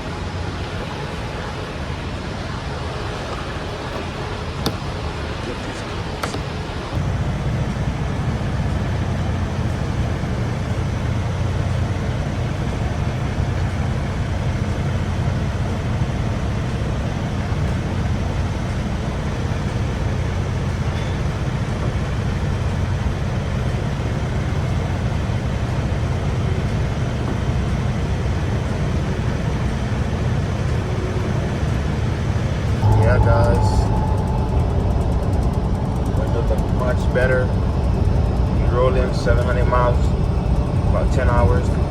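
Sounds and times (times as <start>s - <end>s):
road noise: 0.0s - 8.5s
truck engine rumble: 0.0s - 41.9s.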